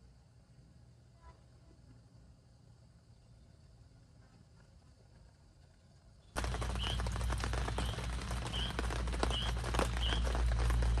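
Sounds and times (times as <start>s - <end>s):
bird chirping: 5.8s - 11.0s
rain pattering: 6.4s - 11.0s.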